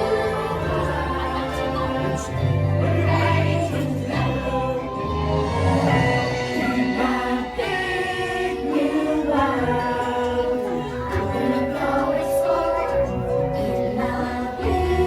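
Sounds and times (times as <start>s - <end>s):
choir singing wordless music: 0.0s - 15.0s.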